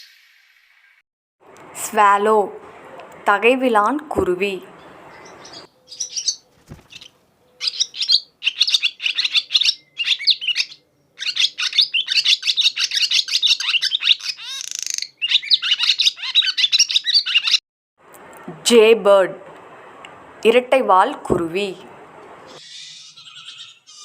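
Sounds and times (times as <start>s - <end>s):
swallow twittering: 5.2s - 17.6s, 22.5s - 24.0s.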